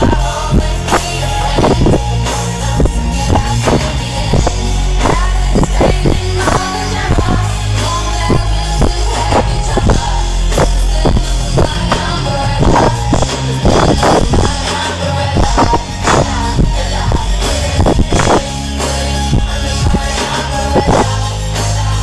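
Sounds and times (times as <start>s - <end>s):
live pop music over sound system: 0.0s - 22.0s.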